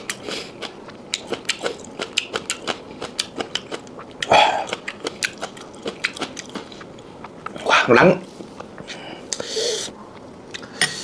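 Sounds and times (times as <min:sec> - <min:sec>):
wet chewing clicks and smacks: 0:00.0 - 0:07.6.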